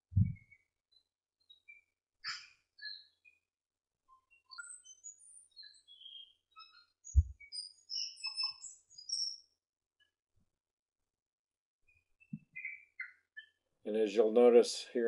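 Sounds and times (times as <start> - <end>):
birds chirping: 4.4 - 9.5, 12.2 - 14.6.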